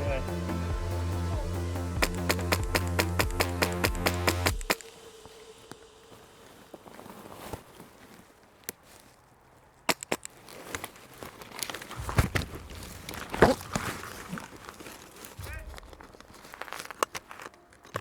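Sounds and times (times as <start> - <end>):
sharp clicks: 2.0 - 5.0, 9.9 - 10.9
footsteps: 2.0 - 18.0
clothing and gear rustling: 4.8 - 18.0
scraping and crunching: 6.1 - 18.0.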